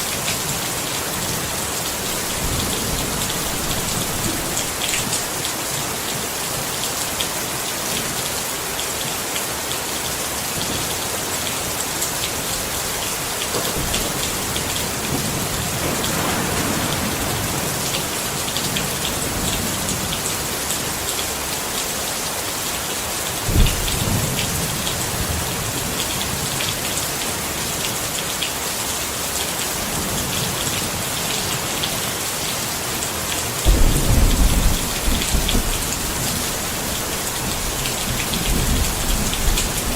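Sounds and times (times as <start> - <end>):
rain pattering on a tent: 0.0 - 39.9.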